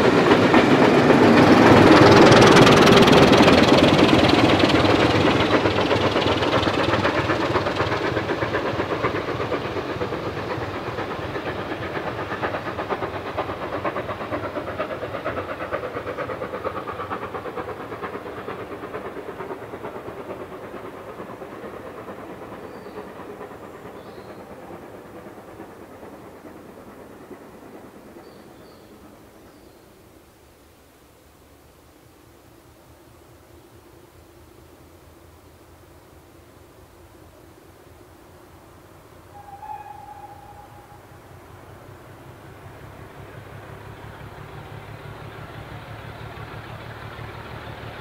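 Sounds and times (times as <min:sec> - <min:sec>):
wheels clicking on rails: 0:00.0 - 0:29.7, 0:39.3 - 0:48.0
locomotive engine noise: 0:00.0 - 0:48.0.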